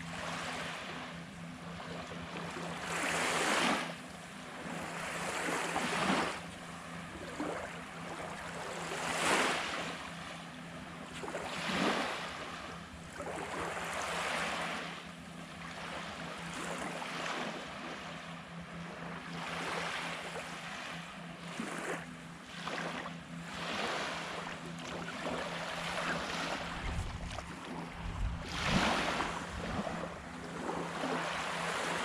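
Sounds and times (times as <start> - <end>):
small waves washing onto sand: 1.7 - 10.3, 11.0 - 15.0, 19.3 - 32.0.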